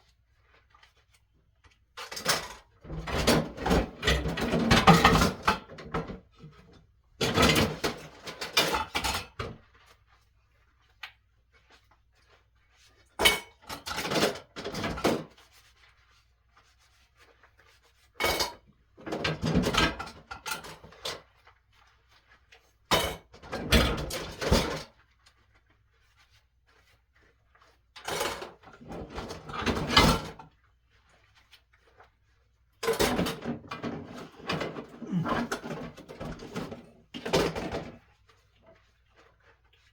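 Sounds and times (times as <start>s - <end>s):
dishes and pots clattering: 2.0s - 6.2s, 7.2s - 9.6s, 13.2s - 15.3s, 18.2s - 21.2s, 22.9s - 24.9s, 28.0s - 30.5s, 32.8s - 38.0s.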